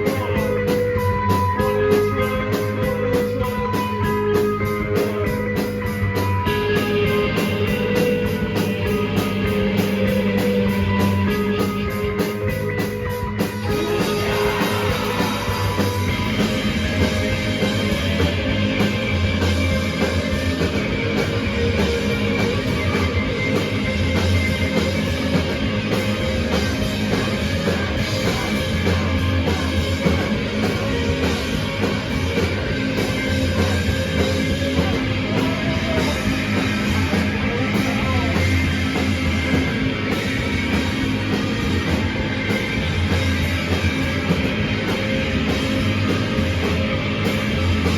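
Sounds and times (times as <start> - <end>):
live rock band playing: 0.0 - 47.9.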